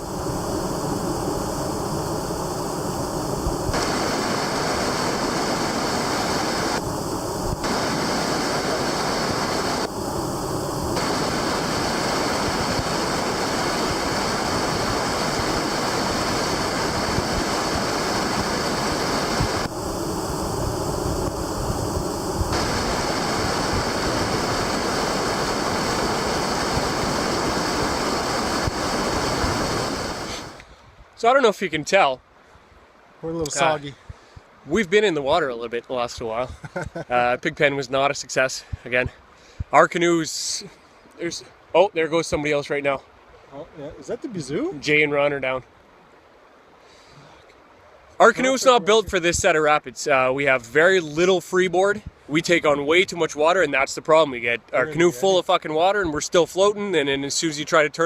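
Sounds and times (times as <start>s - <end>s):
whitewater rapids rushing: 3.7s - 6.8s, 7.6s - 10.1s, 10.9s - 19.8s, 22.5s - 30.6s.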